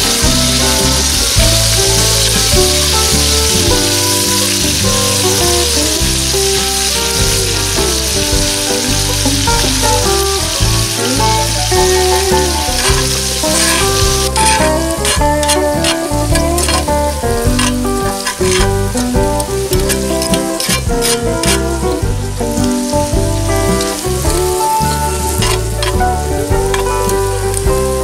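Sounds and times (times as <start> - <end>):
background music: 0.0 - 28.0
vegetables sizzling in oil: 0.0 - 28.0
metal tongs scraping pan: 10.9 - 21.8, 23.9 - 26.0.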